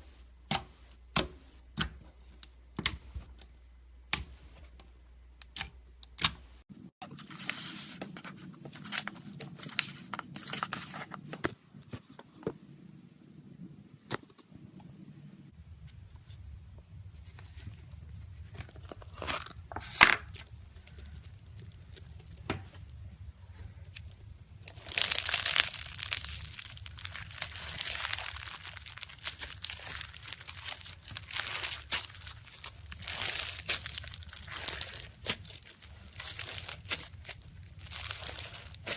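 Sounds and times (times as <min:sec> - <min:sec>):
slime clicking and crackling: 0:20.3 - 0:23.0, 0:23.8 - 0:38.9.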